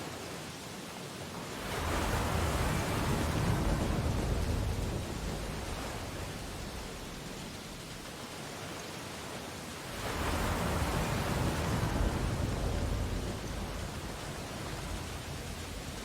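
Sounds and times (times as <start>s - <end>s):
steady surf hiss: 0.0s - 16.0s
wave breaking and surging: 1.5s - 8.1s, 9.9s - 16.0s.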